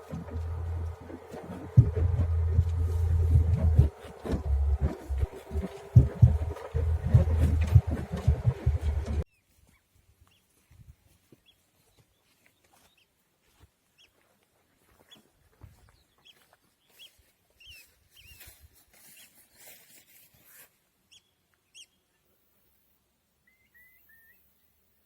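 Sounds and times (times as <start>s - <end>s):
faint bird chirps: 23.4s - 24.7s.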